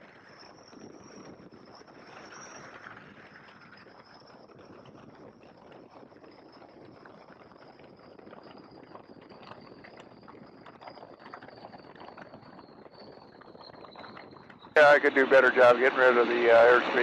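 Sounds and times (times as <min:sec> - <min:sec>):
muffled plane engine and airflow: 0:14.7 - 0:17.0
high whine falling in pitch: 0:14.8 - 0:17.0.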